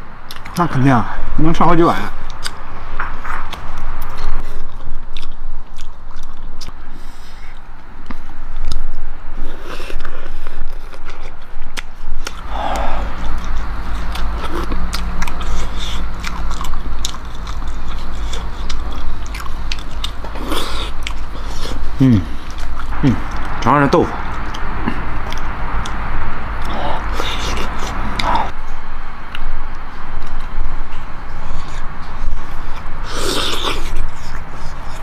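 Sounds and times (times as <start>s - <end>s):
low steady hum: 0.0s - 35.0s
person chewing: 0.3s - 0.5s, 3.2s - 23.6s, 24.2s - 28.6s, 29.3s - 35.0s
mouth clicks and smacks: 0.3s - 0.6s, 24.2s - 26.0s.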